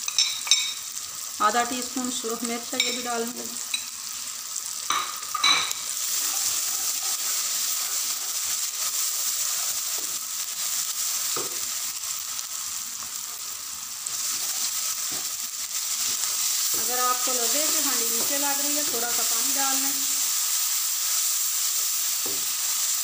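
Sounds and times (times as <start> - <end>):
masala sizzling in hot oil: 0.0 - 23.0
spatula stirring and scraping: 5.4 - 11.6, 13.0 - 19.8.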